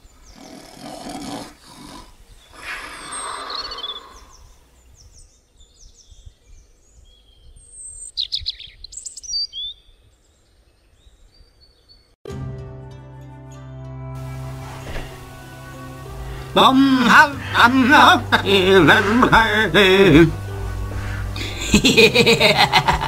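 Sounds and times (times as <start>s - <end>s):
songbirds chirping: 0.0s - 12.2s, 14.2s - 23.0s
rapid bird trill: 2.4s - 4.6s
brief rushing noise: 14.2s - 16.6s.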